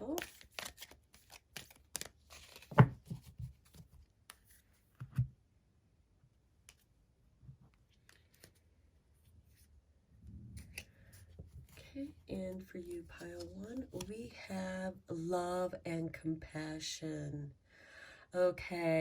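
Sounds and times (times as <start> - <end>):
cards being shuffled: 0.0 - 4.7, 8.0 - 8.7, 10.6 - 14.1.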